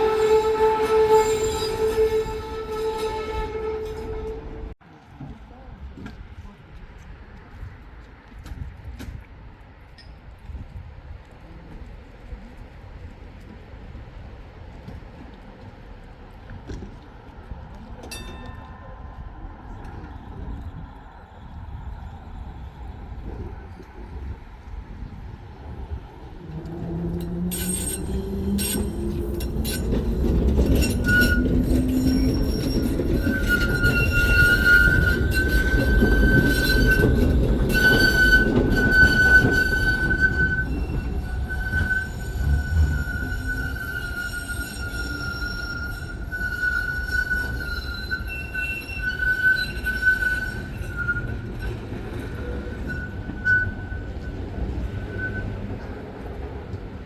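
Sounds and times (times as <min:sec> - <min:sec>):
tram motor whine: 0:00.0 - 0:04.8, 0:25.6 - 0:48.0
wheels squealing on curve: 0:00.0 - 0:04.8, 0:26.4 - 0:56.2
wheels clicking over rail joints: 0:25.7 - 0:57.0.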